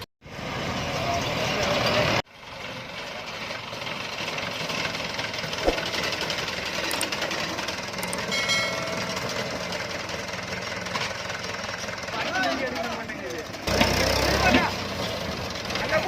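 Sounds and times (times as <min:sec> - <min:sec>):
diesel engine knocking chatter: 0:00.9 - 0:16.0
sharp knock: 0:05.6 - 0:05.9.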